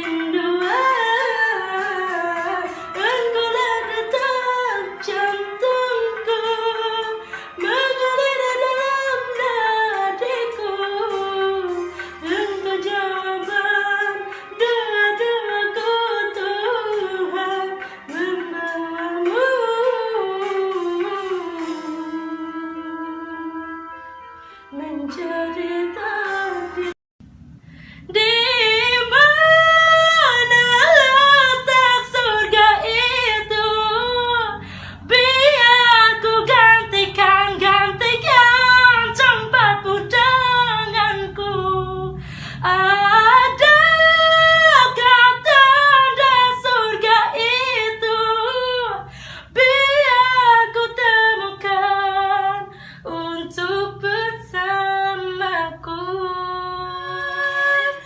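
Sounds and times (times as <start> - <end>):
singer breathing: 7.2 - 7.6, 11.9 - 12.2, 17.8 - 18.1, 27.6 - 28.1, 34.6 - 35.1, 42.2 - 42.6, 49.0 - 49.6, 52.7 - 53.1.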